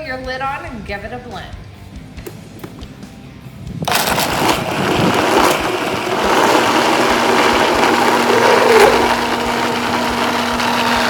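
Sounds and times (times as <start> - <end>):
blender running: 3.9 - 11.0.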